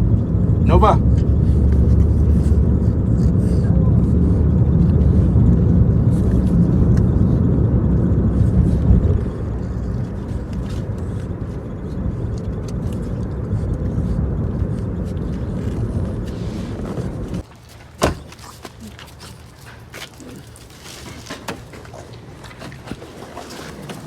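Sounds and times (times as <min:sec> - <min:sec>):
car engine and road rumble: 0:00.0 - 0:18.3.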